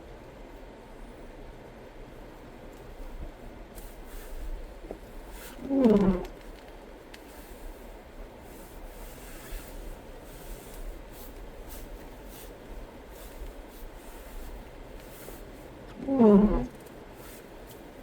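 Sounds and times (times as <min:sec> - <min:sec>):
road and engine rumble in car: 0:00.0 - 0:18.0
faint clicks: 0:05.6 - 0:07.4.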